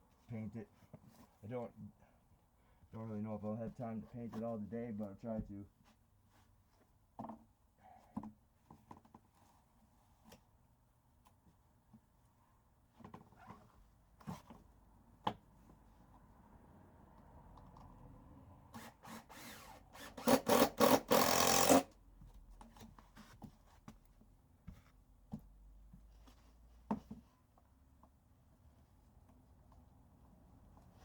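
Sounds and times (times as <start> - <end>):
power drill driving screws: 18.8 - 21.9.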